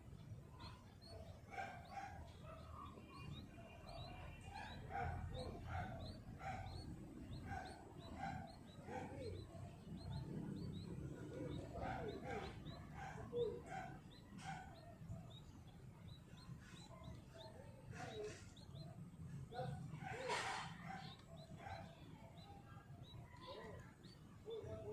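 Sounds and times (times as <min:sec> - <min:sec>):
bird high chirp: 0:00.0 - 0:24.9.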